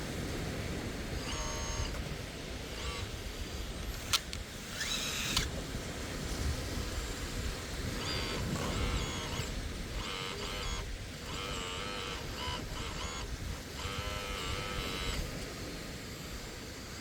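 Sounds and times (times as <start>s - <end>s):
hydraulic pump whining: 0.3s - 6.0s, 6.8s - 17.0s
sharp click: 3.8s - 5.5s.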